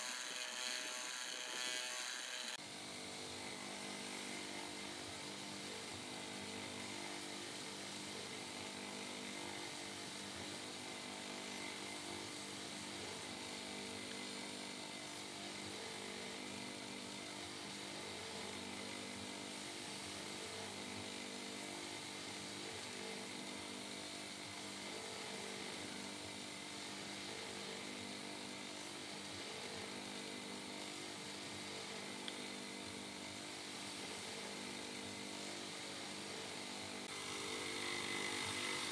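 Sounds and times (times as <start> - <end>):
grinding wheel hiss: 0.0 - 23.2, 26.6 - 38.9
electric motor hum: 0.0 - 38.9.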